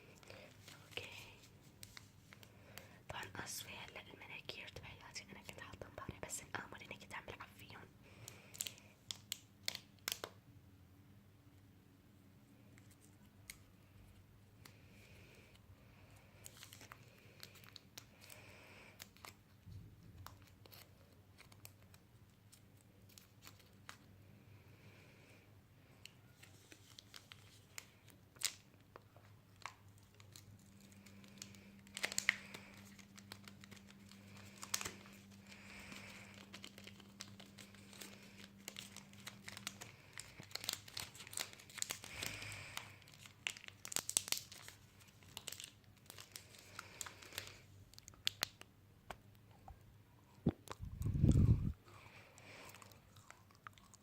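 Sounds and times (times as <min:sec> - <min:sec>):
crinkly material crumpled and torn: 0:00.0 - 0:03.2, 0:08.2 - 0:10.4, 0:16.2 - 0:24.1, 0:26.1 - 0:48.7
faint steady hum: 0:00.0 - 0:54.0.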